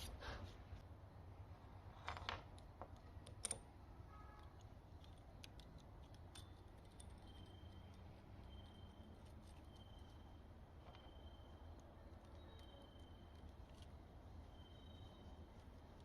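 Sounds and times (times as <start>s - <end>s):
small metal parts clicking: 4.4s - 10.1s.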